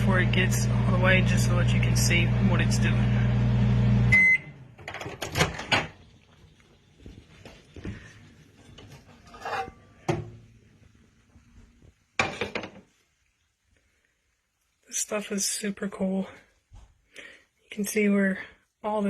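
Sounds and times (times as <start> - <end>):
microwave oven humming: 0.0 - 6.3
microwave beep: 3.4 - 4.7.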